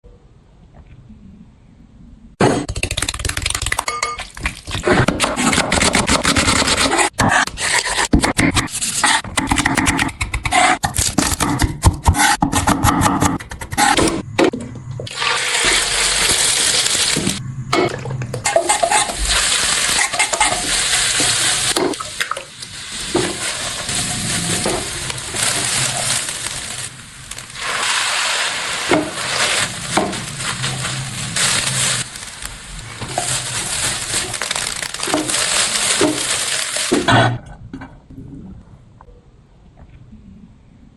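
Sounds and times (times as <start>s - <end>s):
food sizzling in hot oil: 15.1s - 17.4s, 18.4s - 37.0s
utensil stirring in pan: 18.4s - 37.1s.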